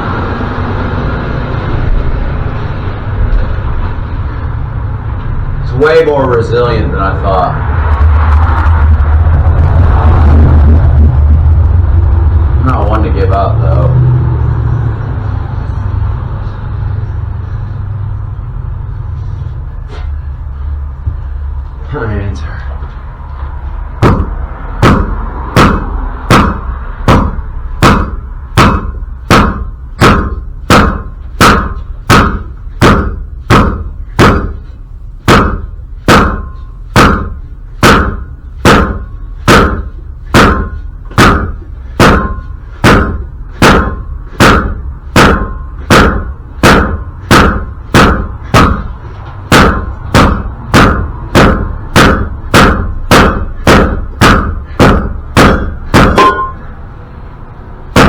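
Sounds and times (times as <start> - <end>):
hammer blows on metal: 24.0 - 56.8.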